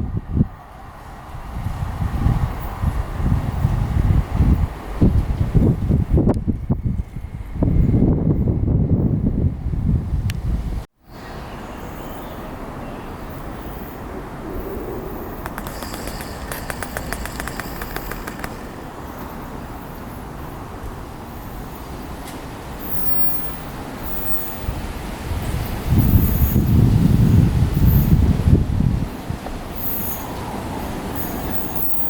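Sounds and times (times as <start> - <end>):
electric train rumbling: 0.0 - 32.0
traffic hum: 0.0 - 32.0
quick high ticks: 15.4 - 18.7.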